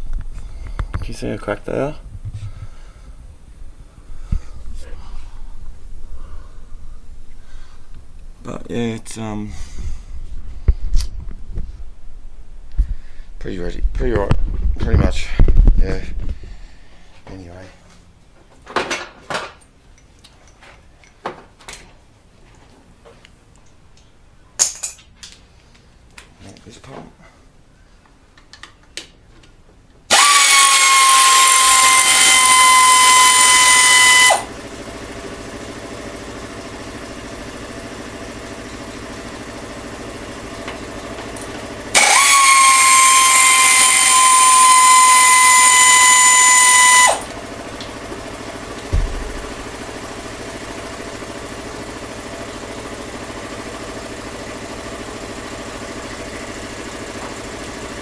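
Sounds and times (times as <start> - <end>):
power tool motor whining: 30.1 - 58.0
thump: 48.9 - 49.6.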